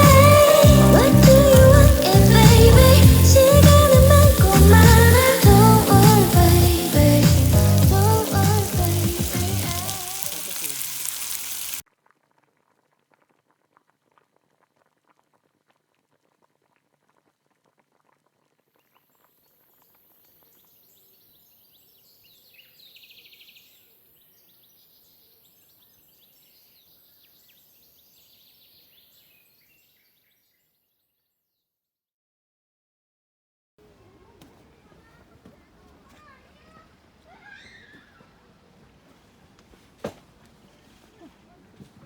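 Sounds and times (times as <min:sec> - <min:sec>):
small birds chirping: 0:00.0 - 0:11.8, 0:33.8 - 0:39.6
steady high hiss: 0:00.0 - 0:11.8.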